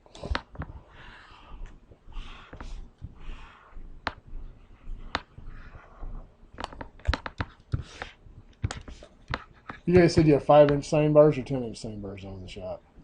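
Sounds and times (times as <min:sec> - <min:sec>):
light clicks and taps: 0:06.6 - 0:10.9.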